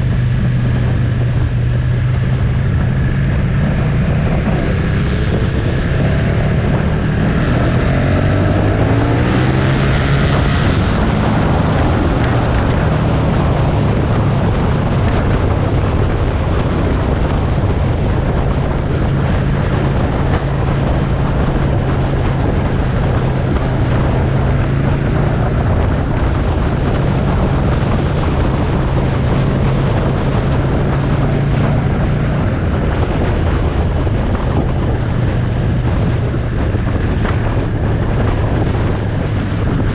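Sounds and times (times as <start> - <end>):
wind rush on microphone: 0.0 - 39.9.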